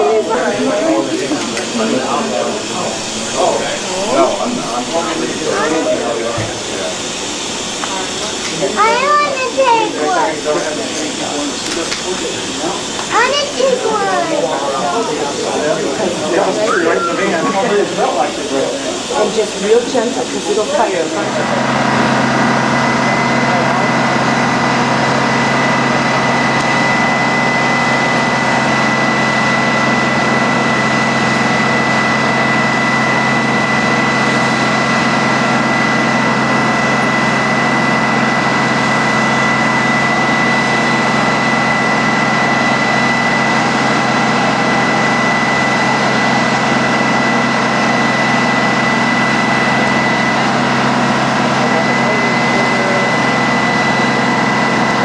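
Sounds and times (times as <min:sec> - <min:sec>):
mechanical drone: 0:00.0 - 0:14.2
high-pitched whine: 0:00.0 - 0:55.0.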